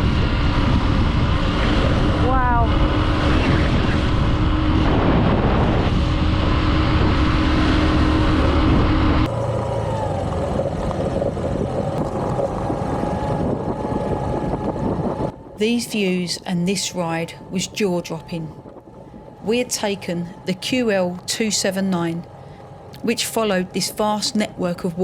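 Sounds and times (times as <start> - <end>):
motorcycle engine running: 0.0 - 15.4.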